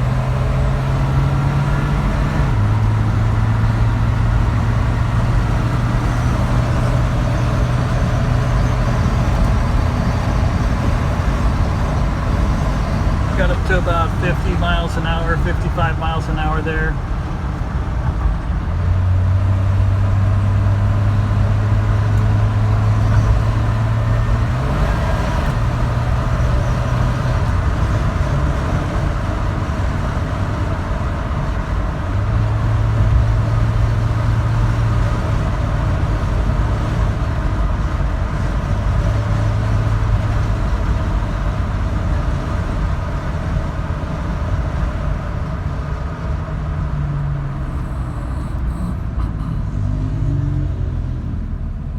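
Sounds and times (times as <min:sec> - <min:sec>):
pickup engine running: 0:00.0 - 0:50.1
road and tyre noise: 0:00.0 - 0:51.9
low hum: 0:47.4 - 0:51.6.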